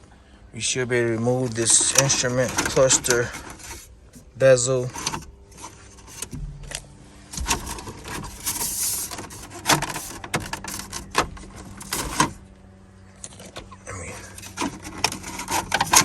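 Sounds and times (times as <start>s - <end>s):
plastic scraping: 1.4s - 12.5s, 13.2s - 16.0s.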